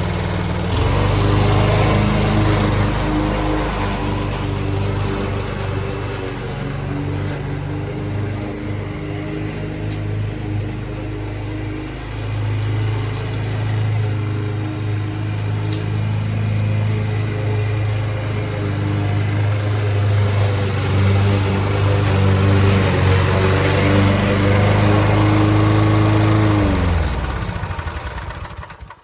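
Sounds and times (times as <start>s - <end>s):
lawn mower engine running: 0.0s - 29.0s.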